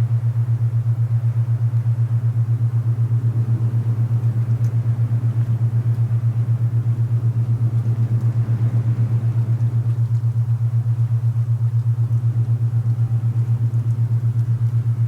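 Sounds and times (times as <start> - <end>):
low pulsing tone: 0.0 - 15.0
soft rush of wind: 2.0 - 11.6.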